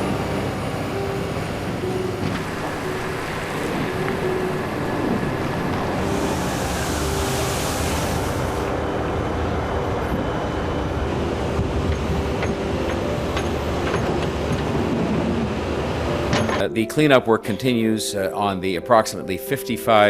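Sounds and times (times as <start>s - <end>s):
vehicle engine running: 0.0s - 8.7s.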